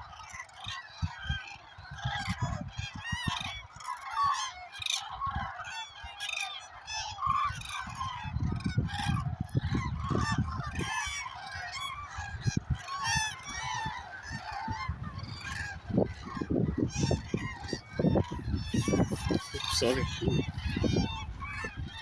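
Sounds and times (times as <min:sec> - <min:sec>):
cranes honking and trumpeting: 0:11.2 - 0:22.0.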